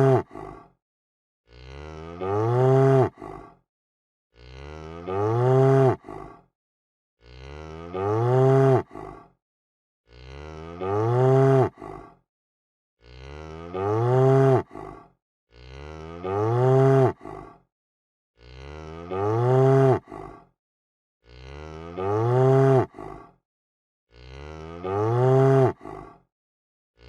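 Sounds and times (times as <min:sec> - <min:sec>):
cow mooing: 0:00.0 - 0:00.2, 0:01.5 - 0:03.2, 0:04.4 - 0:06.1, 0:07.2 - 0:09.0, 0:10.1 - 0:11.8, 0:13.0 - 0:14.8, 0:15.5 - 0:17.2, 0:18.4 - 0:20.2, 0:21.3 - 0:23.0, 0:24.1 - 0:25.8.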